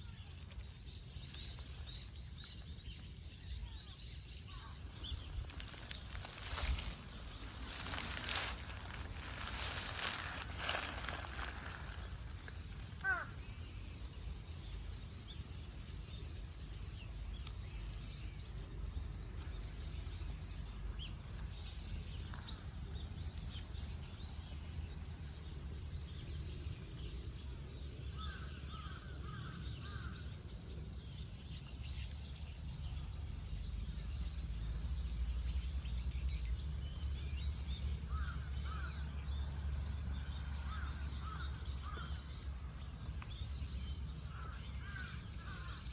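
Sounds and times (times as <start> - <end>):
bird calls: 4.5 - 14.9, 40.6 - 45.9
low rumble: 4.8 - 15.0.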